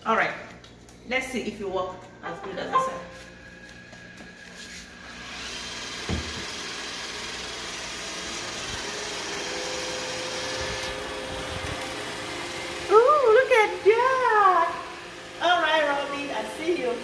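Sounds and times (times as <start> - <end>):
robot vacuum running: 3.4 - 17.0
knock: 6.1 - 6.4.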